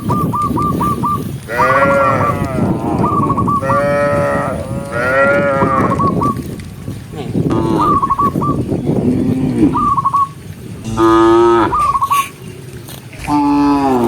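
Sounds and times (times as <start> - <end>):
cows mooing: 1.5 - 6.0, 8.8 - 10.0, 10.8 - 14.0.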